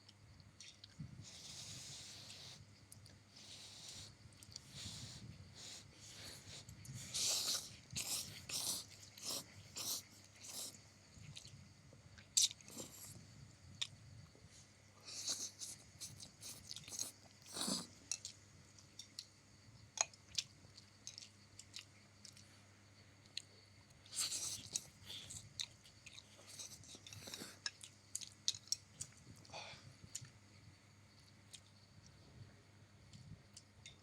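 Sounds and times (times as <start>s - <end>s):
person chewing noodles: 0.4s - 11.6s, 12.2s - 13.2s, 15.0s - 19.3s, 20.0s - 22.5s, 23.2s - 29.5s.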